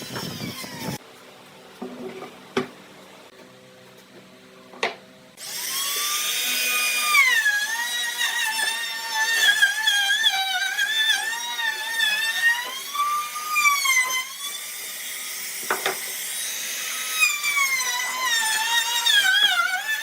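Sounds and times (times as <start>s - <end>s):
power tool whining cutting wood: 0.0s - 1.0s, 5.4s - 20.0s.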